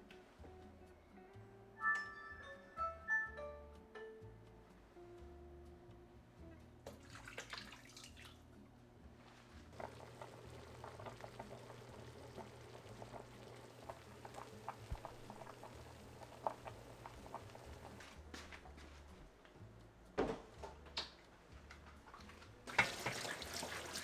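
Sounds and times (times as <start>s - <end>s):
soup bubbling at a boil: 9.7s - 18.1s, 22.7s - 24.0s.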